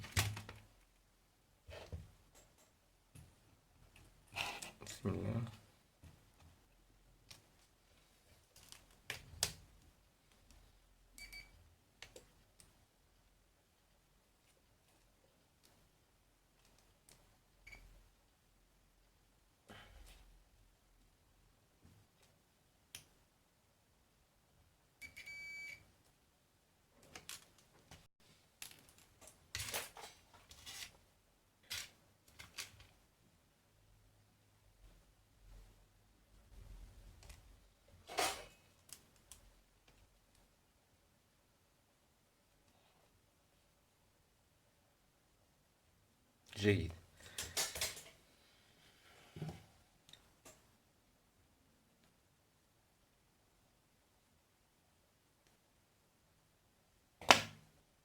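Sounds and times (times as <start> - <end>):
multimeter beep: 25.0 - 25.8.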